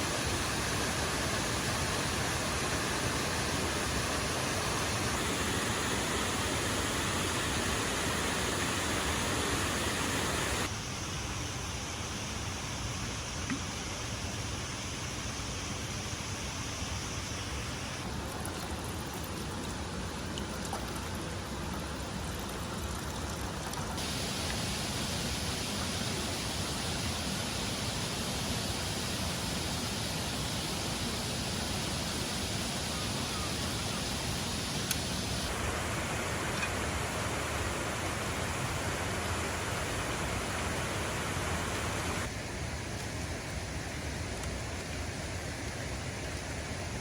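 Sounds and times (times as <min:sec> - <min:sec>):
waterfall rushing: 0:00.0 - 0:10.7, 0:24.0 - 0:42.3.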